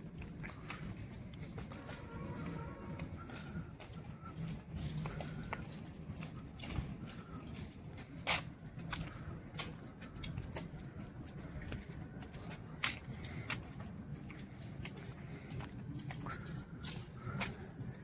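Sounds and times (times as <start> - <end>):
insects trilling: 7.3 - 18.0.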